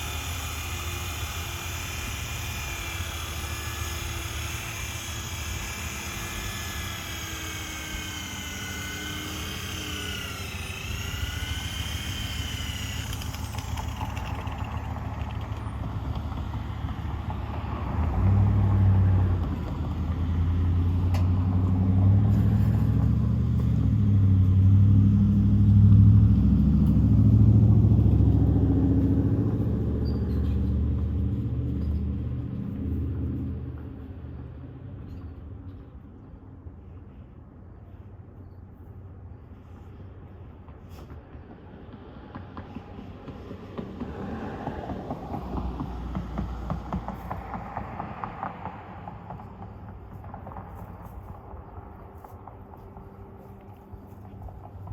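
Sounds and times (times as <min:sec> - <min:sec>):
power polisher motor whine: 0:00.0 - 0:14.6
low rumble of buffing: 0:00.0 - 0:30.2.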